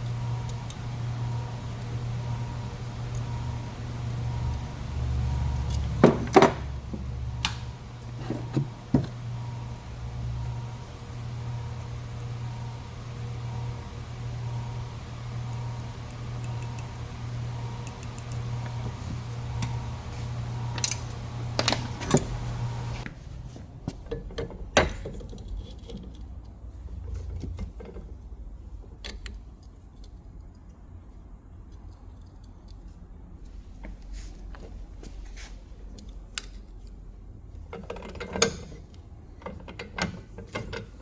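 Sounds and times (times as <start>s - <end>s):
machine electric hum: 0.0s - 23.6s.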